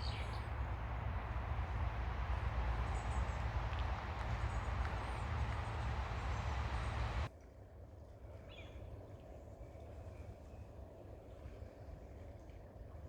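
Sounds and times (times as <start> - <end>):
faint high chirps: 0.0 - 7.3
ocean waves washing on beach: 0.0 - 7.3.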